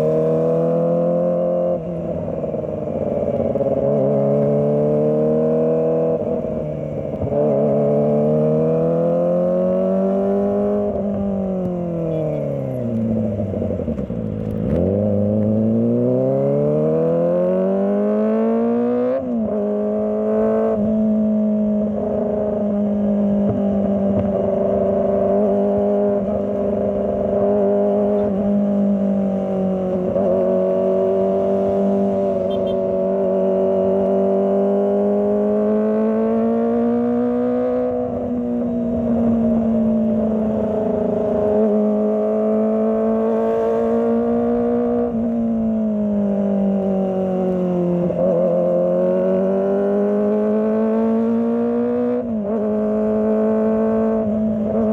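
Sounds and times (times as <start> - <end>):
motorcycle engine running: 22.7 - 34.5.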